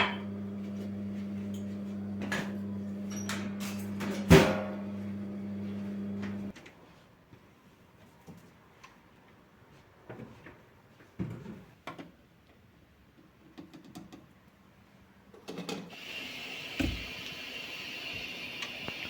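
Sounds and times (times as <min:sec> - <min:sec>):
kitchen items knocking and clattering: 0:01.5 - 0:05.2.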